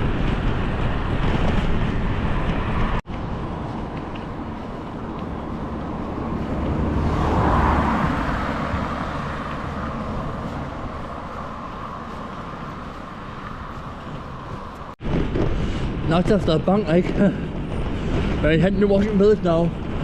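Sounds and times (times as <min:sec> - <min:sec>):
road and wind noise: 0:00.0 - 0:20.0.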